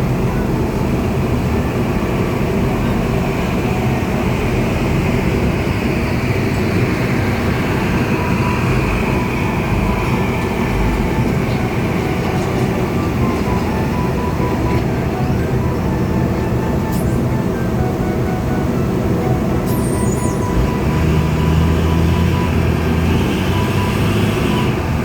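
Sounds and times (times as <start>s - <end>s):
diesel engine rumbling: 0.0s - 25.0s.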